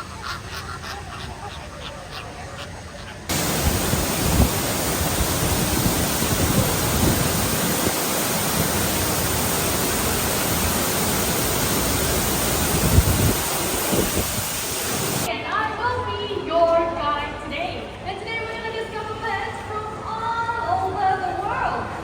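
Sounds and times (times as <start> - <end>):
loud rushing noise: 3.3 - 15.3.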